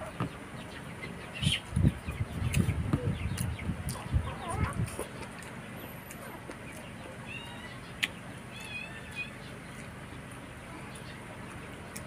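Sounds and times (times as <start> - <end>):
chickens clucking: 0.0 - 12.0
chewing and mouth smacking: 3.3 - 6.9, 8.0 - 12.0.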